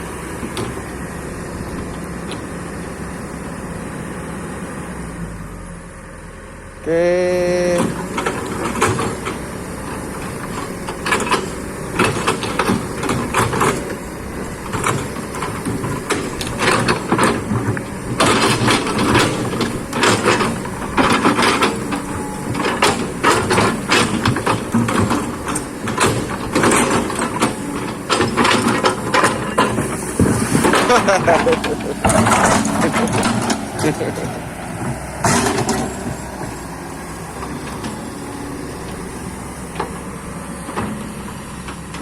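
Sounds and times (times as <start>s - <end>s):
excavator diesel engine running: 0.0s - 42.0s
knocks and clanks: 0.3s - 3.0s, 7.7s - 36.6s.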